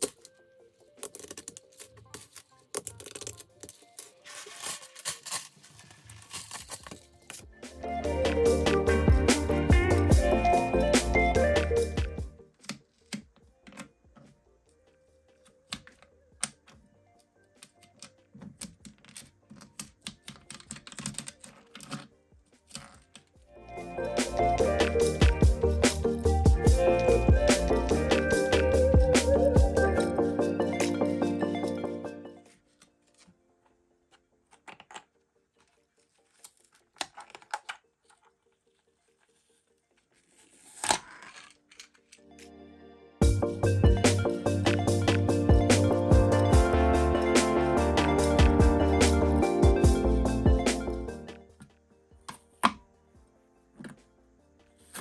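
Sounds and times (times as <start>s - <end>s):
scrape or rustle: 3.9s - 7.3s, 38.6s - 41.6s.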